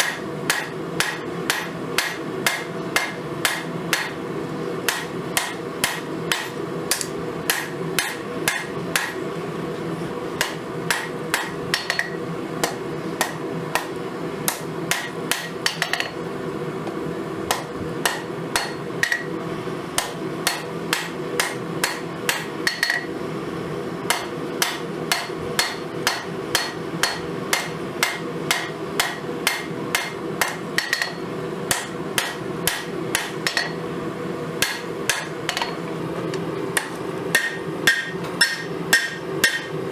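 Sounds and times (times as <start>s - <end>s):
steady hum: 0.0s - 39.9s
hammer blows on anvil: 36.8s - 39.8s.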